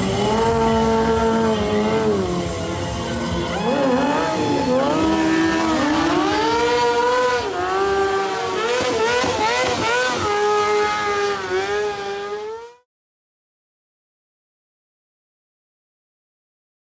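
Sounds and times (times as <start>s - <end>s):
motorcycle engine revving: 0.0s - 12.9s.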